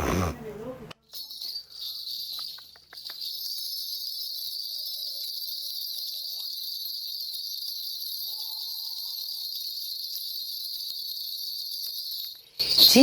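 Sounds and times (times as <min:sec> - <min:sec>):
high-pitched insect chirring: 0:01.2 - 0:13.0.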